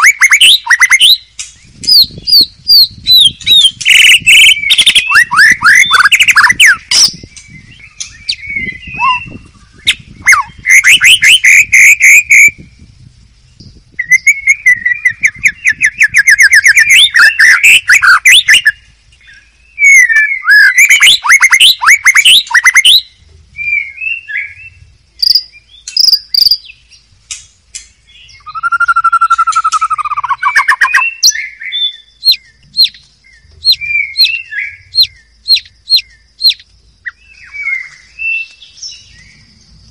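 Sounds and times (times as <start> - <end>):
sharp bird ticking notes: 0.0 - 12.7, 14.0 - 23.2, 24.6 - 39.5
low whistled bird phrase: 0.0 - 13.0
bird singing trills: 0.0 - 39.9.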